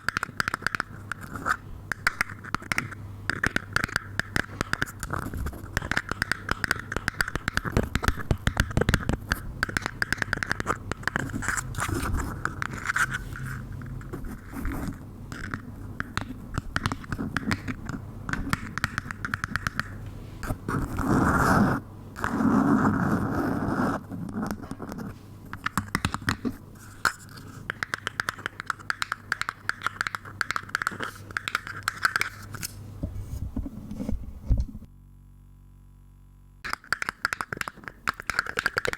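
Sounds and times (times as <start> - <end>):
rapid scratching and crackling: 4.6 - 15.5.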